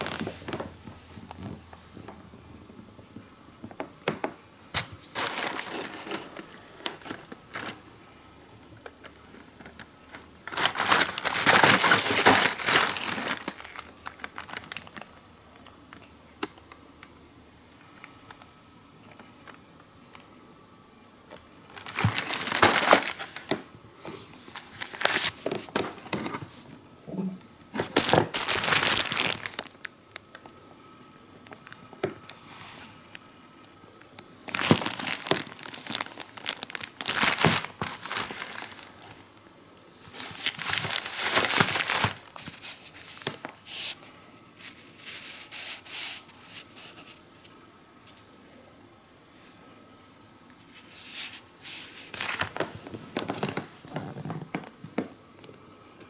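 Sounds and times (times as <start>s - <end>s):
packaging crinkling and tearing: 0.0s - 0.7s, 4.8s - 7.9s, 8.8s - 15.2s, 21.7s - 23.7s, 24.4s - 26.1s, 27.8s - 30.5s, 34.4s - 47.2s, 50.8s - 54.7s.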